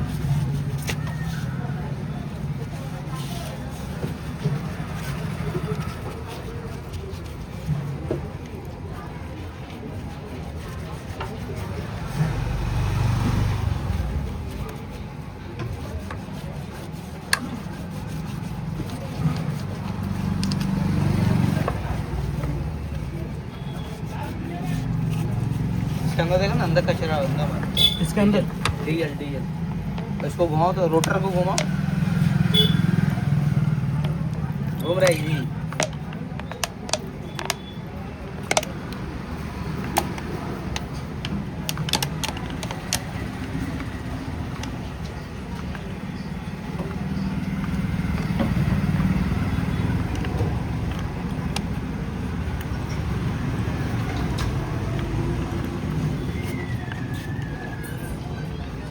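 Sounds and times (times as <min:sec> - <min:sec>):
vehicle engine running: 0:11.7 - 0:58.9
light sharp clicks and taps: 0:18.8 - 0:23.1.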